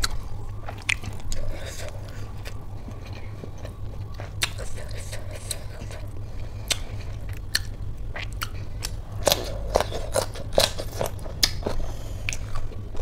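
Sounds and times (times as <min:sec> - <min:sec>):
person chewing food: 0:00.0 - 0:13.0
steady low hum: 0:00.0 - 0:13.0.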